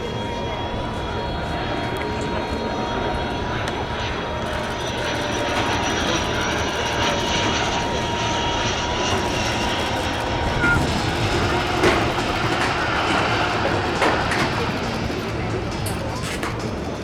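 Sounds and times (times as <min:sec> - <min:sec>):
jet engines running: 0:00.0 - 0:17.0
thin high whine: 0:04.0 - 0:12.3.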